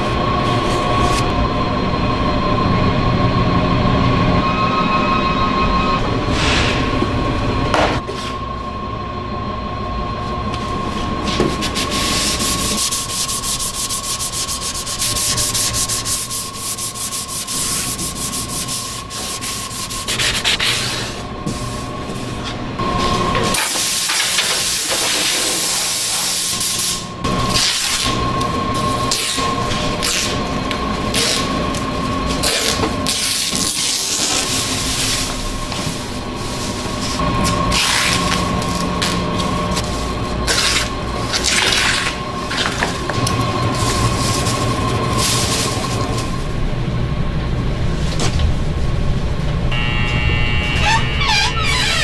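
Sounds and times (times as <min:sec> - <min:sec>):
workshop machinery whining: 0:00.0 - 0:52.0
rubbing and grinding noise: 0:50.5 - 0:52.0.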